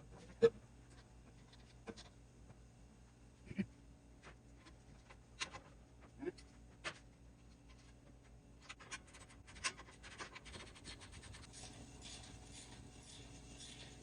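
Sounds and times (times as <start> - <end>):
scratchy rubbing: 9.5 - 14.0.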